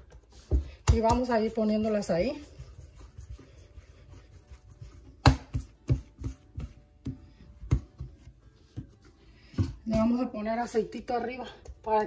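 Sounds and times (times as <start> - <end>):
dough slapping on counter: 0.0 - 8.9.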